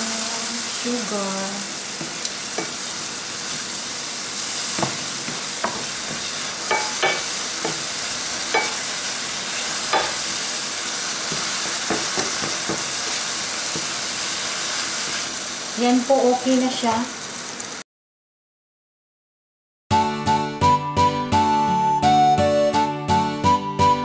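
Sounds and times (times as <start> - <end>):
bananas sizzling in a pan: 0.0 - 17.8
spatula scraping and tapping pan: 2.0 - 2.8, 4.7 - 8.9, 9.8 - 10.2, 11.3 - 14.0.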